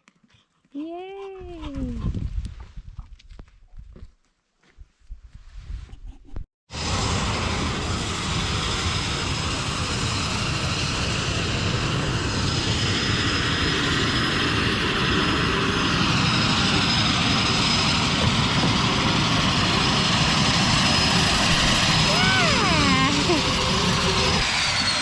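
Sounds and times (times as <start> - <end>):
propeller plane engine: 6.7 - 25.0.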